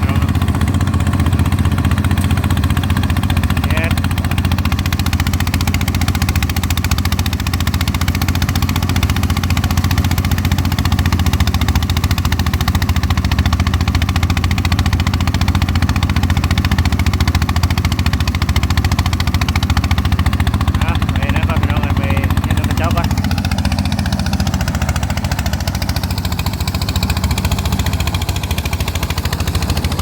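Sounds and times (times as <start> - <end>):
rice threshing machine running: 0.0 - 30.0.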